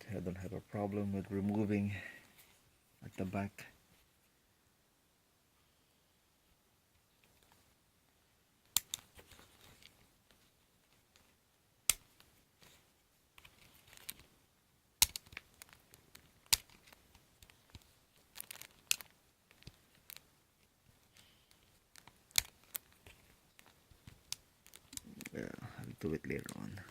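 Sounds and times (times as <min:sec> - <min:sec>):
plastic parts clicking and snapping: 0:08.7 - 0:10.0, 0:13.4 - 0:14.3, 0:15.0 - 0:20.3, 0:21.0 - 0:25.3
packaging rustling and crinkling: 0:15.2 - 0:20.3, 0:20.9 - 0:25.4.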